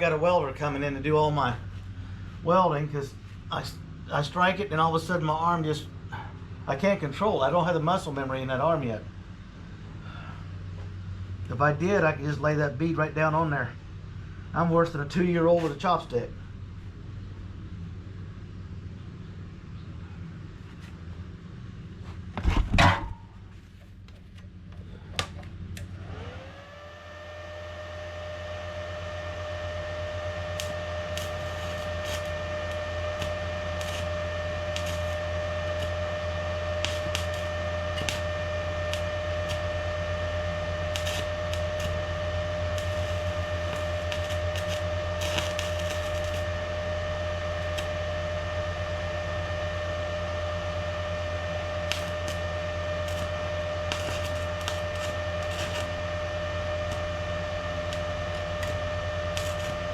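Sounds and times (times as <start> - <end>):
low hum: 0.0 - 59.9
electric motor whining: 25.8 - 59.9.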